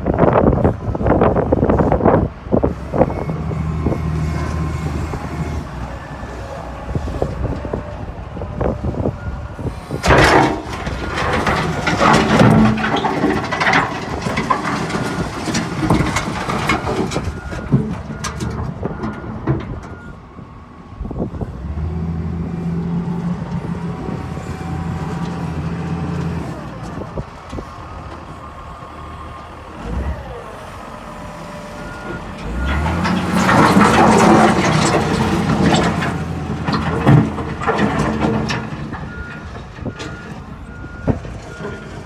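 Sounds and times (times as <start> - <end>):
diesel engine running: 0.0 - 42.0
metal clanking and knocking: 10.0 - 20.1, 32.4 - 42.0.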